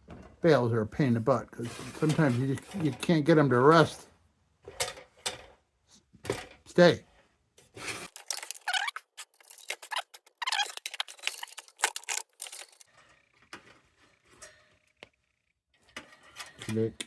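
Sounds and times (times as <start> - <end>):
wire bale rattling on tin: 8.1 - 13.0.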